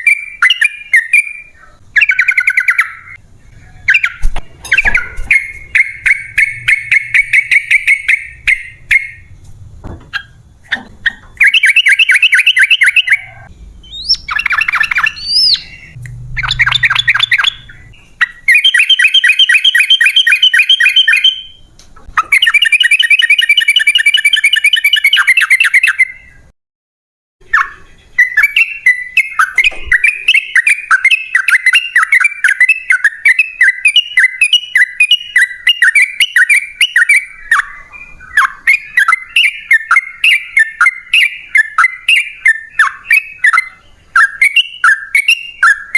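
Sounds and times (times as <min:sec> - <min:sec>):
bulbul rapid chattering song: 0:00.0 - 0:03.2, 0:03.9 - 0:09.3, 0:10.1 - 0:21.5, 0:22.1 - 0:26.2, 0:27.4 - 0:45.9.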